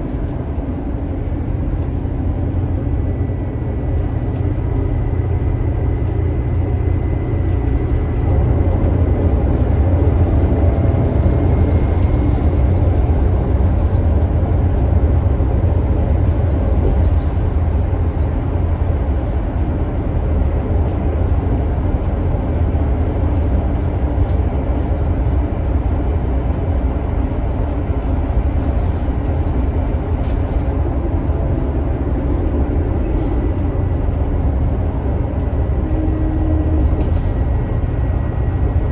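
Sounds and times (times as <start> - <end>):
bus diesel engine rumble: 0.0 - 38.9
road noise: 0.0 - 38.9.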